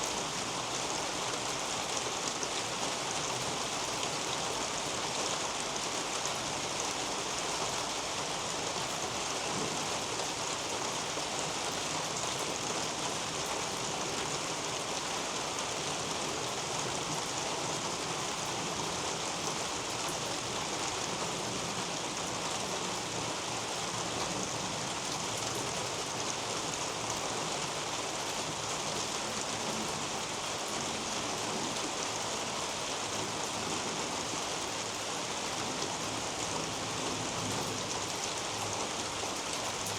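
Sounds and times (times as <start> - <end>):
rain on leaves: 0.0 - 39.9.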